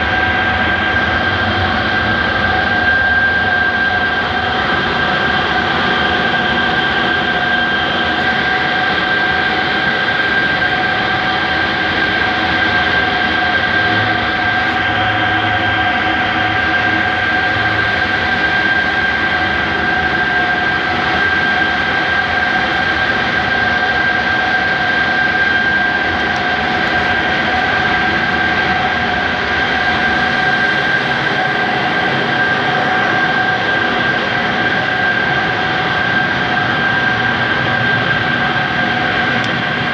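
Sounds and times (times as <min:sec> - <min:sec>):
compressor whining: 0:00.0 - 0:39.9.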